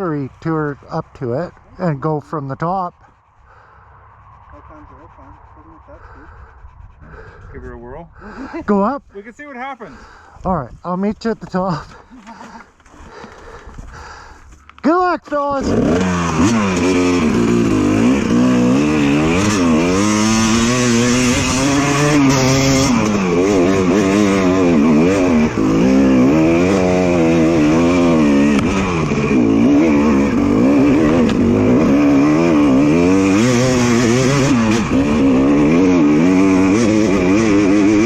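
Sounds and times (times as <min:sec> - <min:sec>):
dirt bike engine revving: 0:15.4 - 0:38.0.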